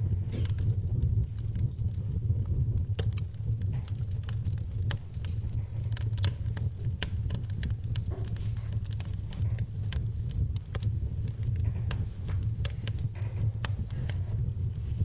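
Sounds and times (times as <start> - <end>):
rain pattering: 0.0 - 15.0
wood fire crackling: 0.0 - 15.0.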